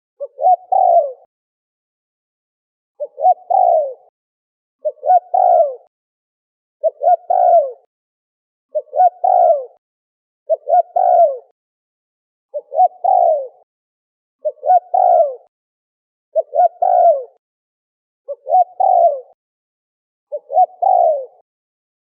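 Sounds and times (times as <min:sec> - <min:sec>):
dove cooing: 0:00.2 - 0:01.3, 0:03.0 - 0:04.1, 0:04.8 - 0:05.9, 0:06.8 - 0:07.9, 0:08.7 - 0:09.8, 0:10.5 - 0:11.6, 0:12.5 - 0:13.7, 0:14.4 - 0:15.5, 0:16.4 - 0:17.4, 0:18.3 - 0:19.4, 0:20.3 - 0:21.4.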